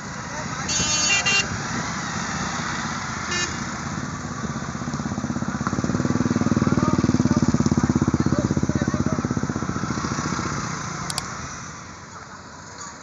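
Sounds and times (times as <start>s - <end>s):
vehicle engine running: 3.9s - 11.7s.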